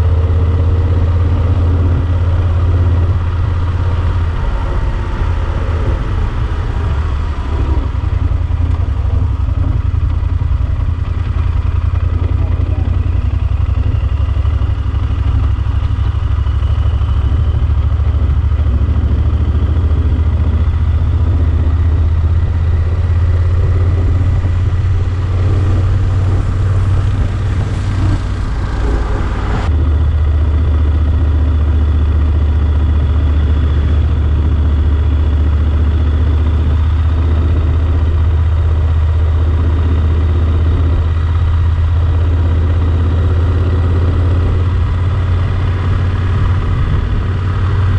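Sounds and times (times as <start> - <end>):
motorcycle engine humming: 0.0 - 47.9
rushing noise: 22.2 - 30.1.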